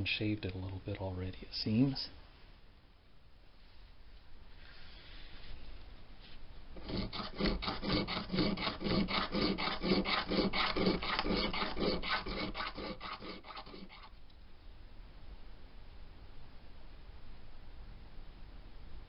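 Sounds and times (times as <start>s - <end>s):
sanding wood strokes: 6.8s - 14.1s.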